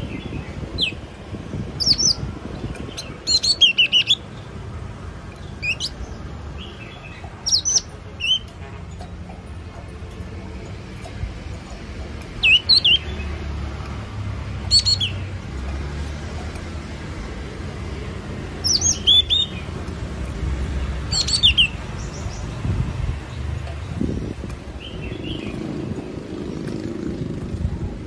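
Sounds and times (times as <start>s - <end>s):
bird chirping: 1.8s - 4.5s, 5.4s - 8.5s, 12.4s - 13.4s, 14.6s - 15.4s, 18.6s - 19.8s, 20.8s - 22.7s.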